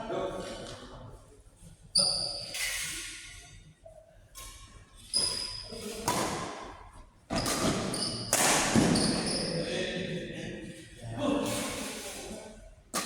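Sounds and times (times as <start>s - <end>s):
racket striking ball in echoing hall: 5.2s - 9.8s.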